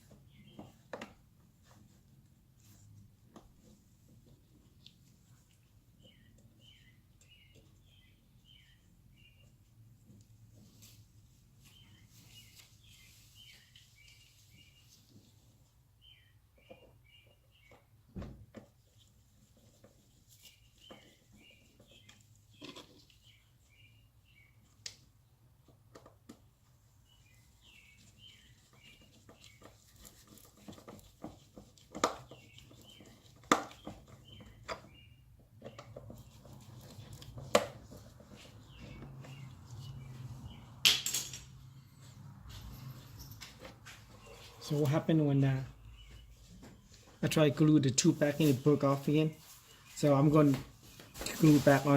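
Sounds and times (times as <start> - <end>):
small bird chirping: 0.1 - 0.8, 5.9 - 9.6, 16.0 - 17.9, 20.4 - 24.8, 27.0 - 31.2, 32.0 - 40.8, 44.1 - 47.1
clicks and knocks of hand work: 29.0 - 40.2.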